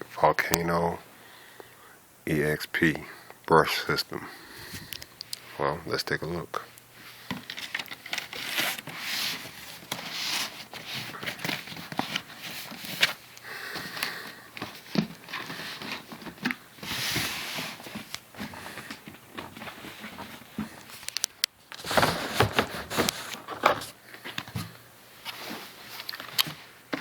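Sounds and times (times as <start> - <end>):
packaging rustling and crinkling: 6.9 - 27.0.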